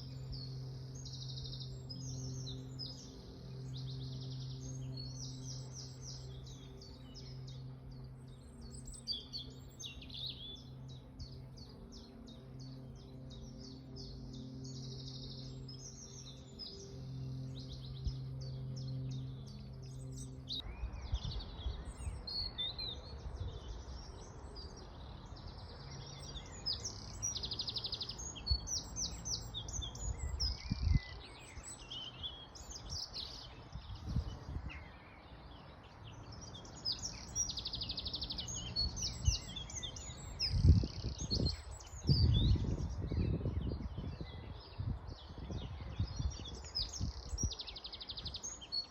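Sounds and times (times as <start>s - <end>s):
low steady hum: 0.0s - 22.2s
songbirds singing: 0.0s - 48.9s.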